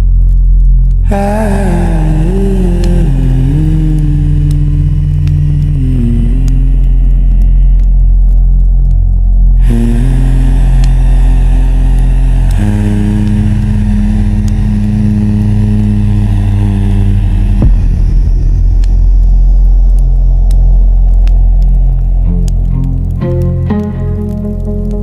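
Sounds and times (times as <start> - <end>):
calm ambient music chords: 0.0 - 25.0
campfire pops and crackles: 16.8 - 25.0.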